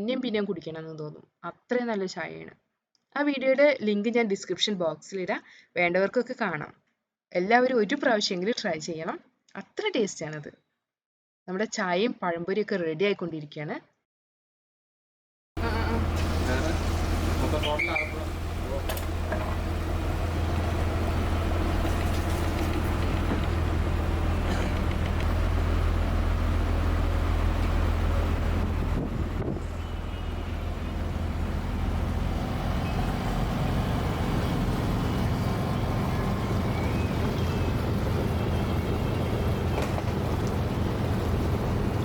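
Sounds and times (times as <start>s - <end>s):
boat engine droning: 15.6s - 42.0s
boat moving through water: 15.6s - 42.0s.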